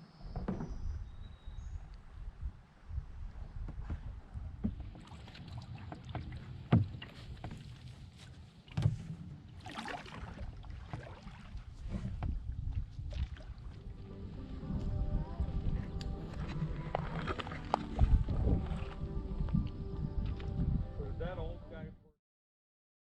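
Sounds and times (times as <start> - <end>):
wind rumbling on microphone: 0.0 - 7.7, 10.3 - 22.0
paddle strokes swishing through water: 3.6 - 20.5
wood knocking against hull: 6.0 - 7.7.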